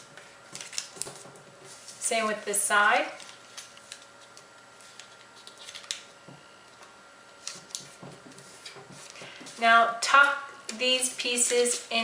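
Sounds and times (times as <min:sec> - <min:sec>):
paper folding and creasing: 0:00.5 - 0:02.0, 0:03.2 - 0:06.1.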